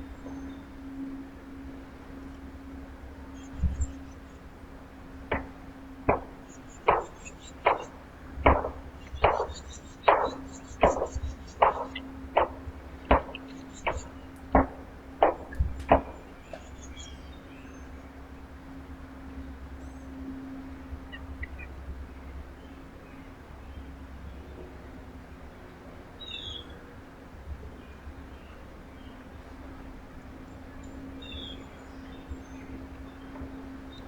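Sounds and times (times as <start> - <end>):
sharp knocks: 5.3 - 16.6
faint high bird chirps: 6.2 - 12.5.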